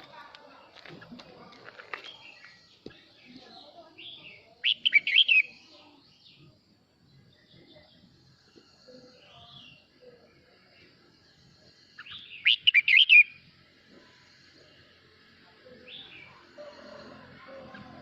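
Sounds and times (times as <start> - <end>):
bird whistled song: 4.6 - 5.6, 12.2 - 13.4.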